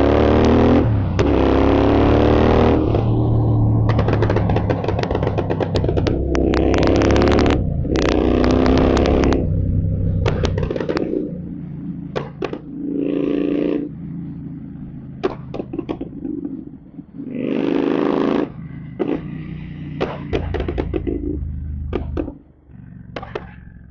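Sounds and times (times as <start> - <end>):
motorcycle engine revving: 0.0 - 23.9
exhaust pops and crackles: 2.8 - 12.8, 15.0 - 19.2, 19.9 - 22.4, 23.0 - 23.9.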